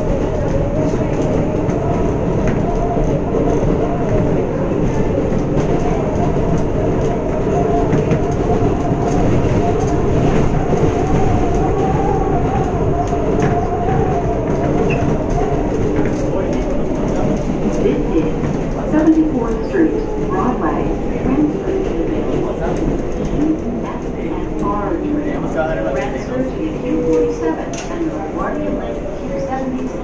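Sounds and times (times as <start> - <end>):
rail clacks: 0.0 - 30.0
train wheels rumbling on rail: 0.0 - 30.0.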